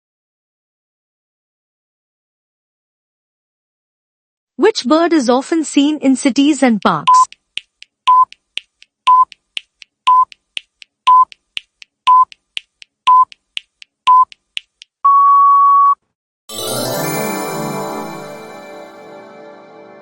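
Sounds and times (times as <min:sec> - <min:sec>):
faint ticks: 0:06.8 - 0:14.9
long timer beep: 0:07.0 - 0:07.3, 0:08.1 - 0:08.4, 0:10.1 - 0:10.4, 0:11.1 - 0:11.3, 0:12.1 - 0:12.3
short timer beeps: 0:07.0 - 0:07.4, 0:08.1 - 0:08.4, 0:09.1 - 0:09.4, 0:10.1 - 0:10.4, 0:11.1 - 0:11.4, 0:12.1 - 0:12.4, 0:13.1 - 0:13.4, 0:14.1 - 0:14.4
music: 0:16.5 - 0:20.0.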